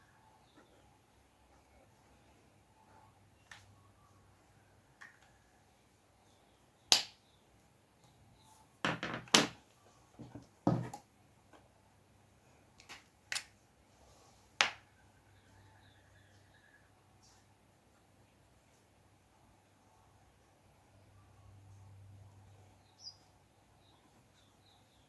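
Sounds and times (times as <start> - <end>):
hard objects tapping and knocking: 8.8 - 9.6, 10.2 - 11.1.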